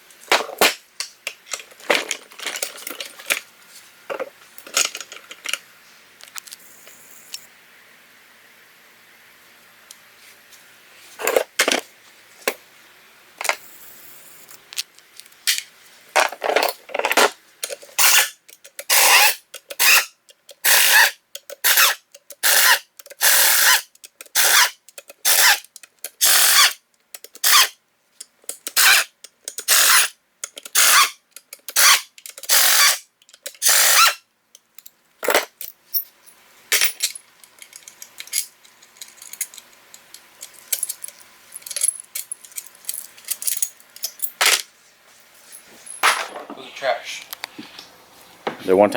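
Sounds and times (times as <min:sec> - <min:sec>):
power tool trigger bursts: 0:18.0 - 0:25.6, 0:26.2 - 0:26.8, 0:27.4 - 0:27.8, 0:28.8 - 0:30.1, 0:30.7 - 0:33.0, 0:33.6 - 0:34.2.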